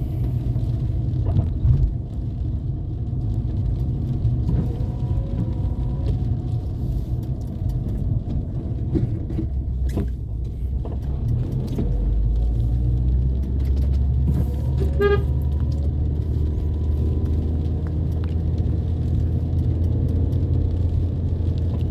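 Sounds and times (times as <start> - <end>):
car engine and road rumble: 0.0 - 21.9
car horn toot: 14.8 - 15.4.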